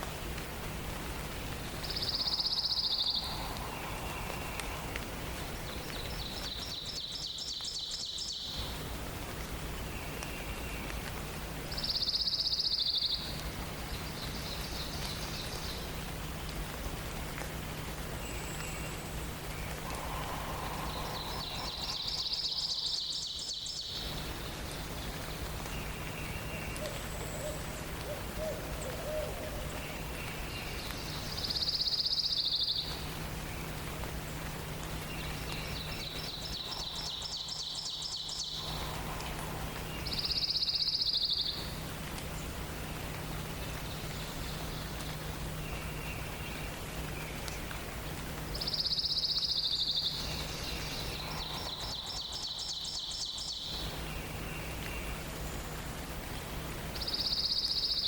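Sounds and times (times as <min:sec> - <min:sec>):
other birds calling: 0:19.1 - 0:31.6.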